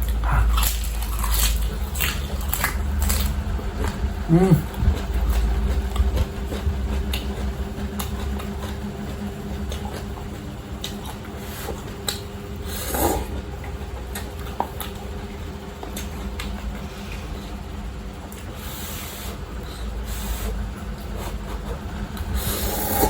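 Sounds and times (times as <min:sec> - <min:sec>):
steady low hum: 0:00.0 - 0:23.0
breathy noise: 0:04.3 - 0:05.0
faint eating clicks: 0:04.6 - 0:12.3.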